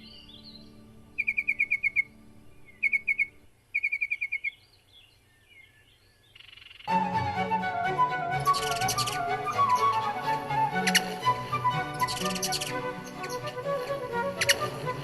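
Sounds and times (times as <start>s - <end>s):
background music: 0.0s - 3.7s, 6.9s - 15.0s
bird twittering: 0.0s - 6.9s, 8.3s - 15.0s
songbird trilling: 0.0s - 6.9s, 11.9s - 13.6s.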